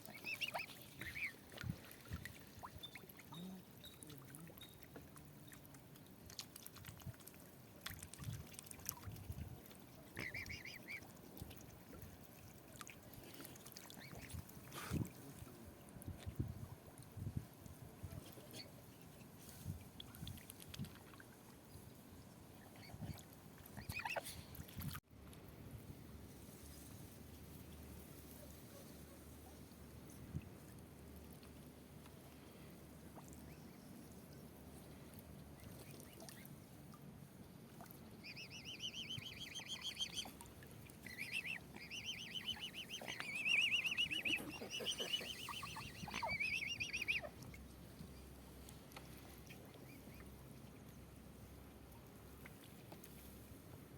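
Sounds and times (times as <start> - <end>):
waterfowl splashing on water: 0.0 - 15.5, 17.7 - 21.7, 22.6 - 25.0, 27.9 - 37.0, 37.7 - 50.8, 52.0 - 53.5.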